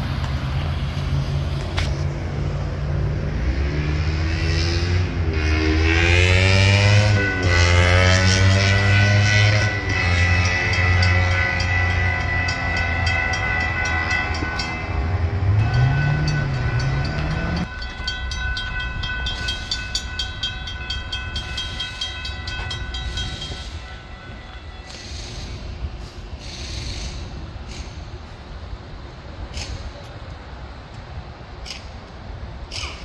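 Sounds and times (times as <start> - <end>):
train rumbling past: 0.0 - 33.0
crossing warning bells ringing: 4.4 - 26.6.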